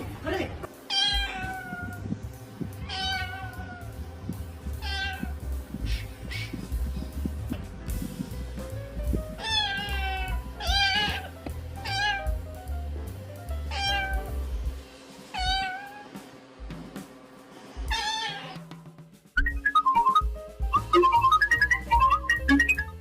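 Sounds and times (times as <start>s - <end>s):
background music: 0.0s - 23.0s
cat meowing: 0.9s - 2.0s, 2.8s - 3.9s, 4.8s - 5.4s, 9.4s - 12.3s, 13.7s - 14.2s, 15.4s - 16.1s, 17.9s - 18.7s.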